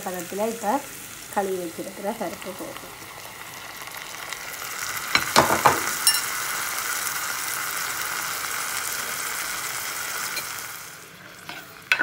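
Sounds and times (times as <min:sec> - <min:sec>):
vegetables sizzling in oil: 0:00.0 - 0:12.0
ringing clink: 0:06.0 - 0:06.3.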